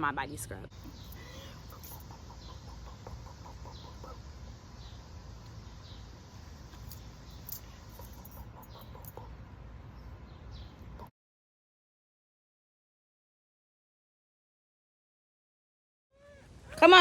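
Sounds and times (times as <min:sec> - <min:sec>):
bird chirps: 0:00.7 - 0:09.3
bird clucking: 0:00.8 - 0:04.6, 0:07.8 - 0:09.5.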